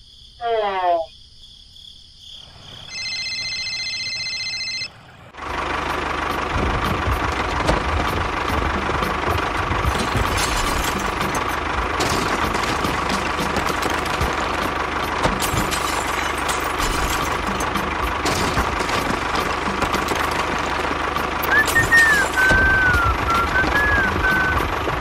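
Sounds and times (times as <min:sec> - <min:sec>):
tractor engine running: 0:02.9 - 0:25.0.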